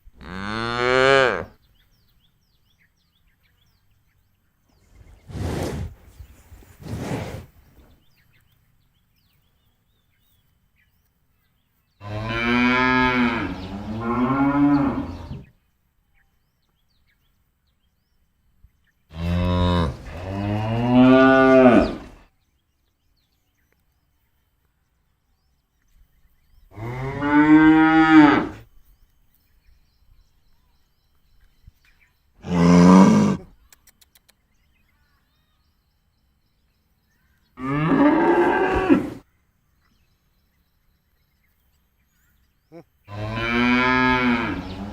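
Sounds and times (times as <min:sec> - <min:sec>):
cow mooing: 0:12.0 - 0:15.4, 0:19.2 - 0:22.1, 0:32.4 - 0:33.5, 0:37.6 - 0:39.2, 0:43.1 - 0:44.9.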